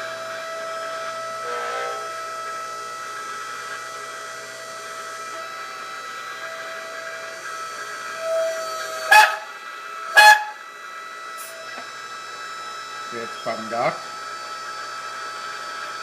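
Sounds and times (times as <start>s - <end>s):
hydraulic pump whining: 0.0s - 16.0s.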